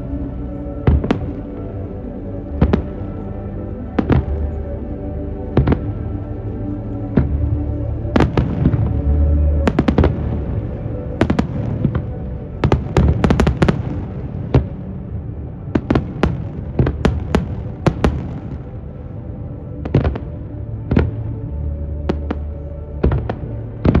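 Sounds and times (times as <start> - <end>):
music playing: 0.0 - 24.0
fireworks bangs and booms: 0.8 - 1.6, 2.6 - 3.1, 4.0 - 4.5, 5.6 - 6.0, 7.2 - 9.0, 9.6 - 15.1, 15.7 - 18.7, 19.8 - 21.4, 22.0 - 24.0.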